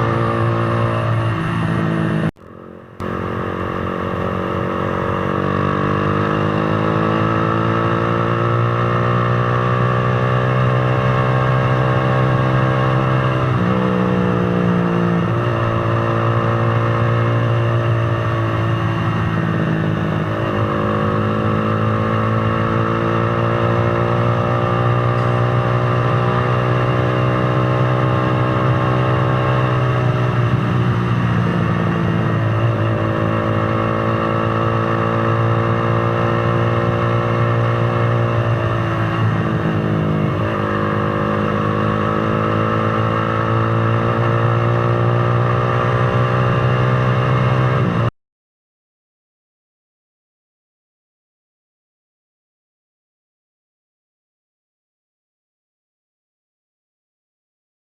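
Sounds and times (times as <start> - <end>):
motorcycle engine accelerating: 0.0 - 48.1
wind and road noise: 0.0 - 48.1.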